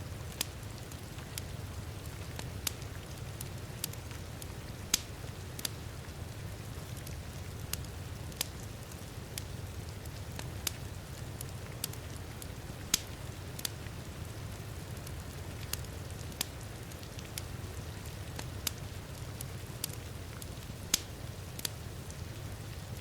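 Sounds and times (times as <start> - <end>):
wood fire crackling and popping: 0.0 - 23.0.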